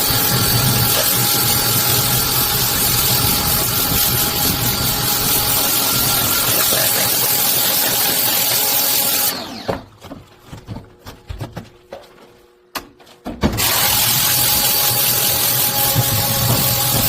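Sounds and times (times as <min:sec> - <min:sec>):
power tool motor running: 0:00.0 - 0:09.7, 0:13.6 - 0:17.0.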